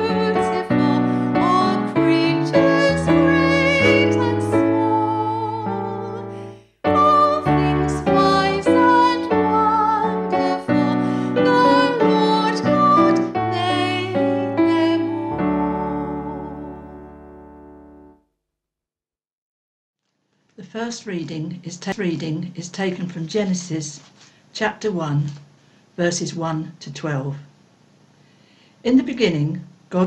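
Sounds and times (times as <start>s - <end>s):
keyboard music with piano notes: 0.0s - 18.2s.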